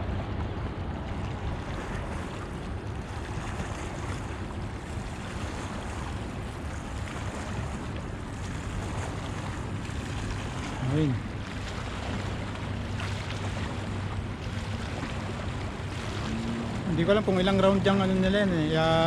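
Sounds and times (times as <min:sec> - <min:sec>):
wind over microphone: 0:00.0 - 0:19.0.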